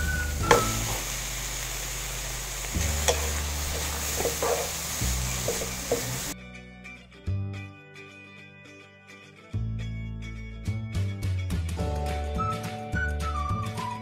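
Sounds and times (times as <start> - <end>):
background music: 0.0 - 1.3, 2.8 - 14.0
food sizzling in a wok: 0.0 - 6.4
spatula scraping a pan: 2.8 - 6.3.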